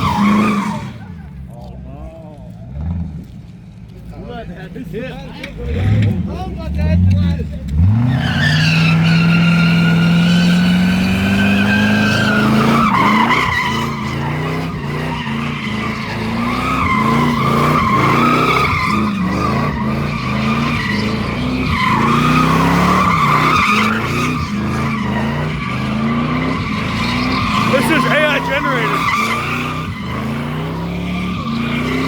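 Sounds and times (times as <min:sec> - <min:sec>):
car engine at high revs: 0:05.4 - 0:32.0
tyres squealing: 0:07.7 - 0:32.0.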